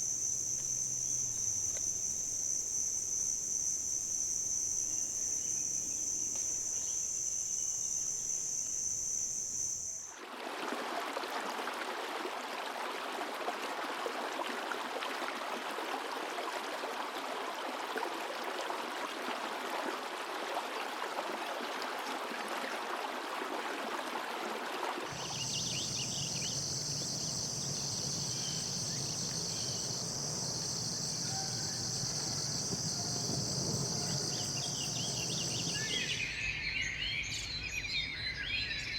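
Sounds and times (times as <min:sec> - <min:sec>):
faint chirps: 0:00.0 - 0:10.1, 0:25.1 - 0:38.4
crickets trilling: 0:00.0 - 0:10.2, 0:25.1 - 0:38.7.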